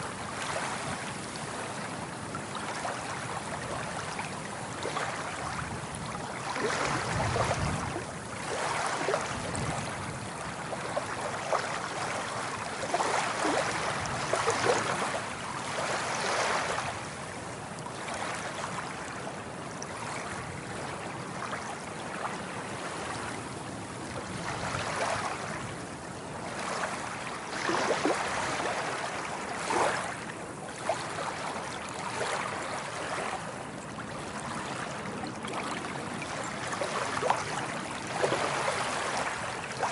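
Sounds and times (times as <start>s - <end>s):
sea waves breaking: 2.6s - 17.0s, 24.1s - 25.7s, 26.4s - 39.9s.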